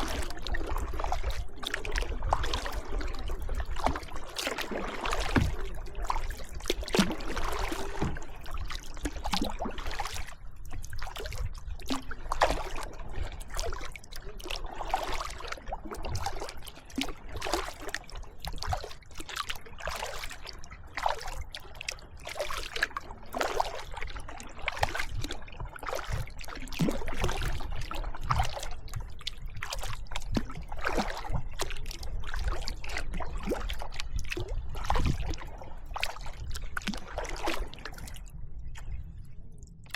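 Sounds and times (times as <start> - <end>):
paddle splashing in water: 0.0 - 39.0
water trickling off paddle: 0.0 - 39.9.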